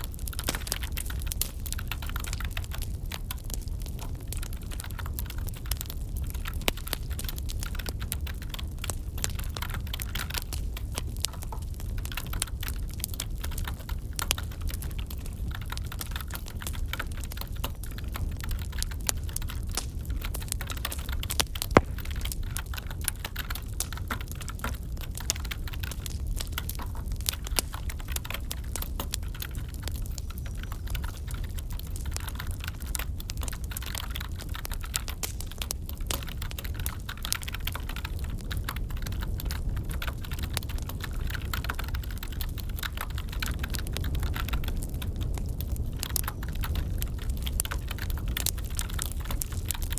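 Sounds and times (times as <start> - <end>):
crackling wood fire: 0.0 - 49.9
loud sharp crack: 21.7 - 22.5.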